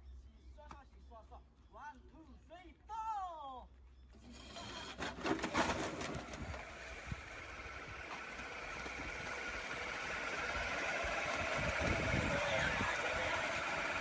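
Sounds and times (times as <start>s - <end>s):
motorbike engine running: 6.3s - 14.0s.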